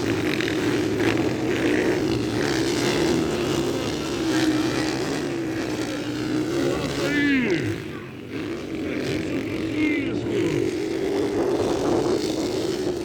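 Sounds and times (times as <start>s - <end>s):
motorcycle engines droning: 0.0s - 13.0s.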